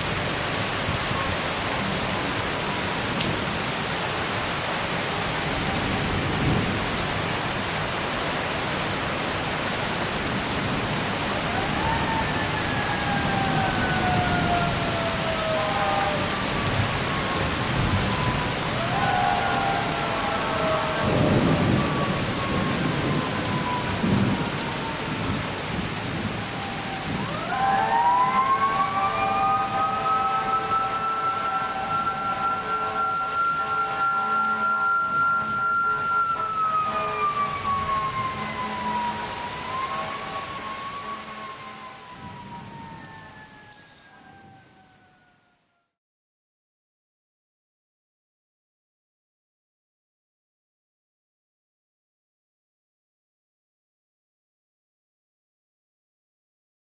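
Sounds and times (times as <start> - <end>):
heavy rain pouring: 0.0 - 45.5
thunder rolling: 10.6 - 41.1, 42.1 - 43.7
siren winding up and down: 26.7 - 41.8.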